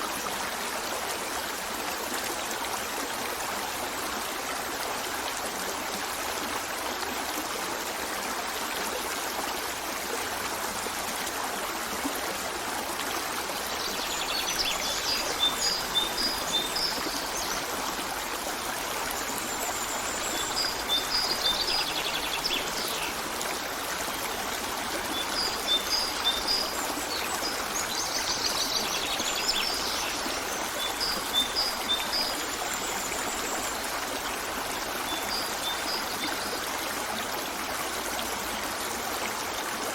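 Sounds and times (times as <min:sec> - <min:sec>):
stream running: 0:00.0 - 0:39.9
songbirds calling: 0:13.7 - 0:18.2.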